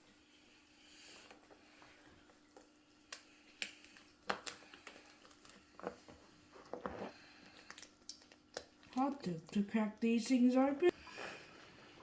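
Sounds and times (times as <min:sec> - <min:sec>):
faint steady hum: 0:00.0 - 0:12.0
lobster shell cracking: 0:02.6 - 0:06.0, 0:07.4 - 0:09.2.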